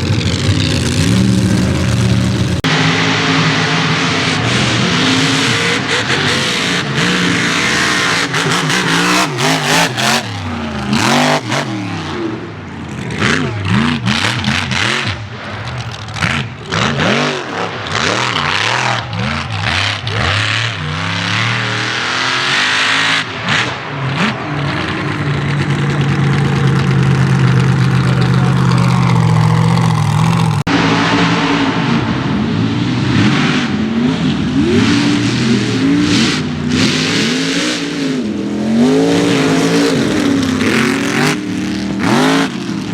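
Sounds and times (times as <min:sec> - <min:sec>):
truck engines revving: 0:00.0 - 0:42.9.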